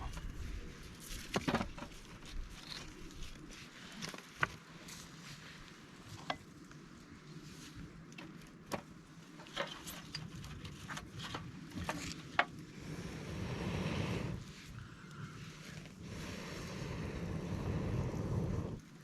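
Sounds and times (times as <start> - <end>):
campfire crackling: 0.0 - 19.0
wind noise: 9.7 - 19.0.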